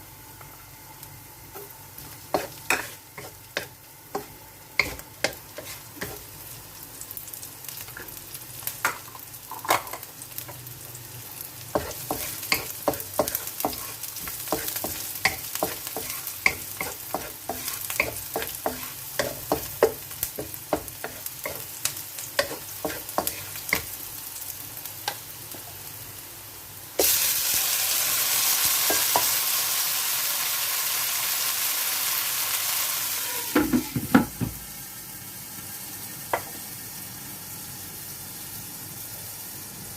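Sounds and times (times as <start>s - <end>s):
chicken wings sizzling: 0.0s - 39.9s
spatula scraping a pan: 2.0s - 6.3s, 11.8s - 21.6s, 22.4s - 23.9s.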